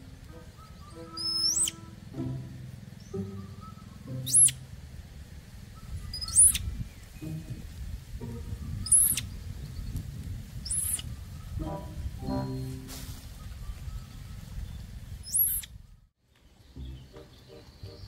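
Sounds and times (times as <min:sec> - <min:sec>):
soft background music: 0:00.0 - 0:06.0, 0:07.1 - 0:09.4, 0:11.6 - 0:13.3, 0:16.7 - 0:18.0
high-pitched chirping squeaks: 0:00.3 - 0:02.0, 0:03.0 - 0:04.7, 0:05.9 - 0:07.6, 0:08.7 - 0:09.3, 0:10.7 - 0:11.0, 0:15.2 - 0:15.7.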